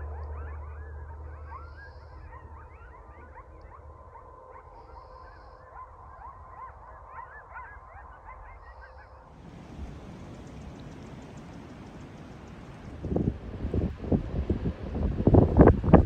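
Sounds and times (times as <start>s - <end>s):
flock of birds chattering: 9.4s - 13.1s.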